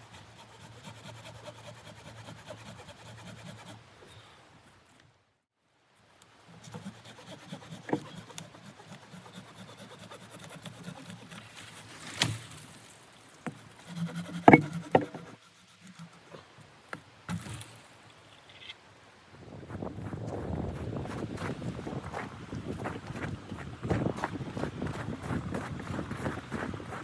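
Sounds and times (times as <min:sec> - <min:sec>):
handling knocks and clicks: 0:14.5 - 0:15.3.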